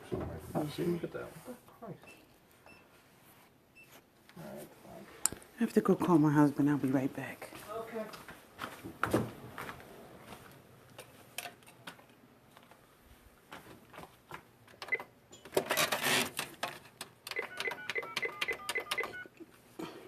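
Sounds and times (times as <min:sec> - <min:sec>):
short keypad beeps: 0:17.3 - 0:19.3.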